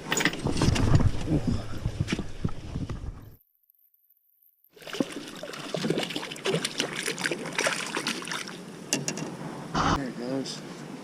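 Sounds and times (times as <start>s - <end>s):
water splashing and trickling: 4.7s - 9.1s.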